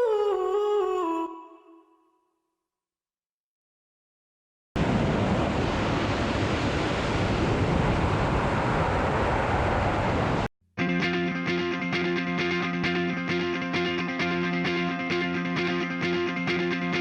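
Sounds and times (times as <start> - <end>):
wind buffeting microphone: 4.8 - 10.5.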